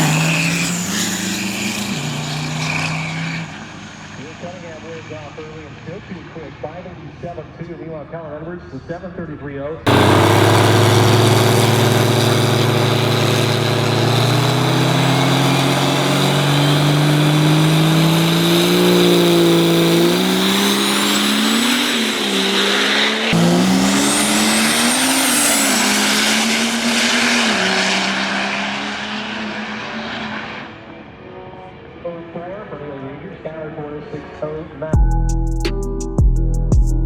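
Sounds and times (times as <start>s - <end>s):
diesel truck engine revving: 0.0s - 4.0s, 9.9s - 30.7s.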